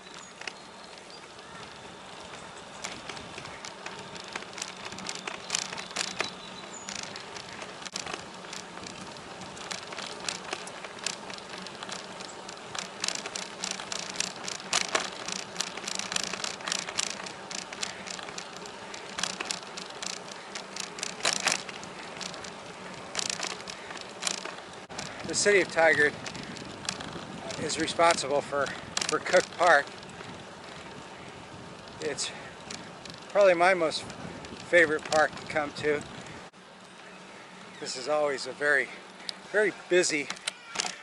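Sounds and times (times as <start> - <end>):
bicycle clicks and rattles: 0.0 - 41.0
bicycle humming: 0.0 - 41.0.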